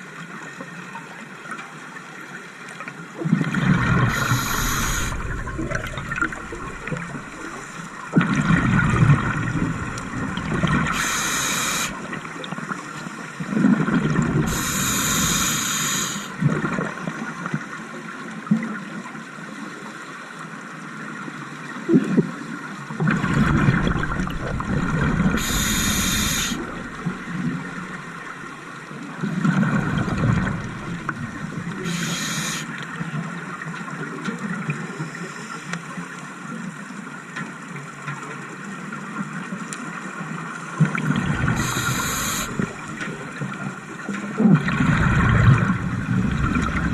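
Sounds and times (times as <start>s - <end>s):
exhaled air bubbling: 3.2s - 12.7s, 13.4s - 17.0s, 23.0s - 28.6s, 29.2s - 33.0s, 40.8s - 46.9s
diver breathing through regulator: 3.9s - 8.0s, 9.2s - 12.2s, 14.4s - 16.4s, 24.0s - 28.0s, 30.6s - 32.8s, 41.5s - 43.1s.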